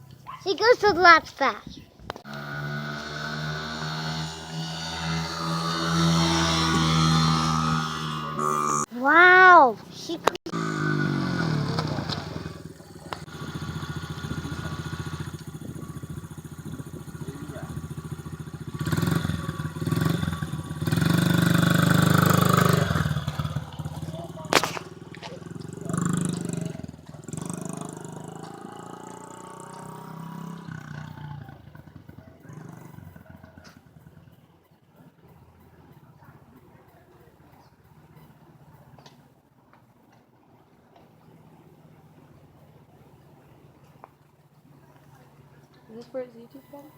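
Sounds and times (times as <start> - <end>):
dirt bike engine chugging: 2.2 - 9.6, 10.4 - 39.0.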